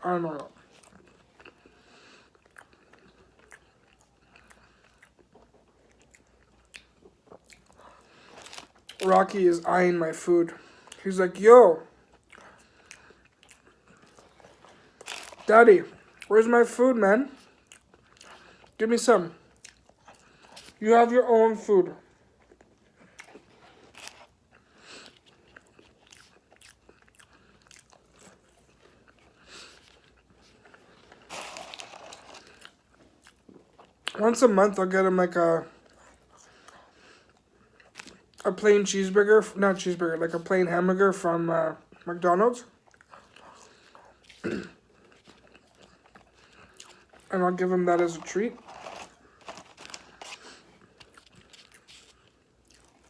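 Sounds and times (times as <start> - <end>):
person chewing food: 0.4 - 9.2, 11.9 - 16.3, 17.3 - 18.8, 19.4 - 20.8, 22.0 - 34.2, 35.7 - 38.5, 42.7 - 53.0.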